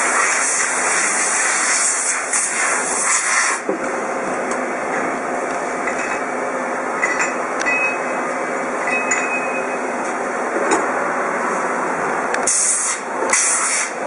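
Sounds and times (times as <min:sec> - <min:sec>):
metallic clinks: 0:08.8 - 0:09.8.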